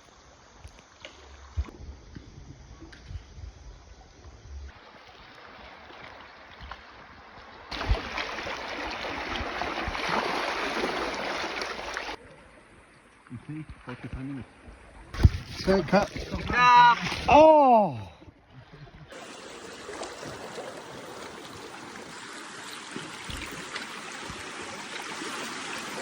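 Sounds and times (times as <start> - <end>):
water rushing and splashing: 4.7 - 12.2, 14.0 - 17.6, 19.1 - 26.0.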